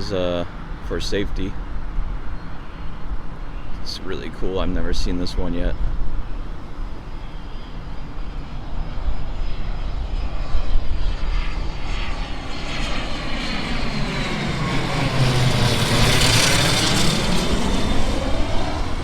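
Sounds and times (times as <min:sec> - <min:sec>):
jet rush with high whine: 0:00.0 - 0:19.0.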